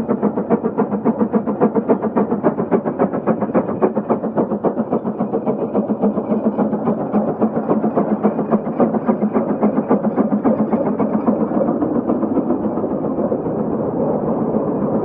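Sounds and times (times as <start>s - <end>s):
steam traction engine chuffing: 0.0s - 13.9s.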